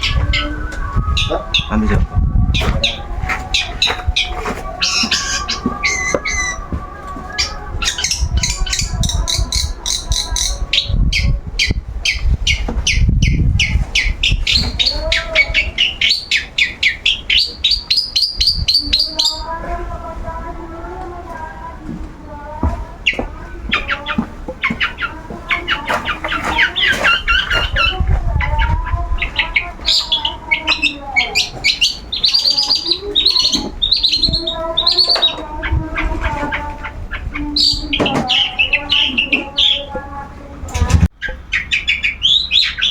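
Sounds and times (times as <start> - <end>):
low rumble: 0.0 - 4.8
bird calling high descending notes: 0.0 - 19.4.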